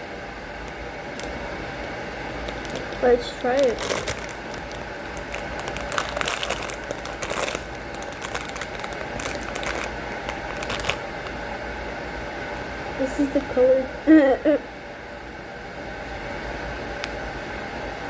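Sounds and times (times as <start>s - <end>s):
plastic snack bag crinkling: 1.1s - 1.5s, 2.4s - 11.4s.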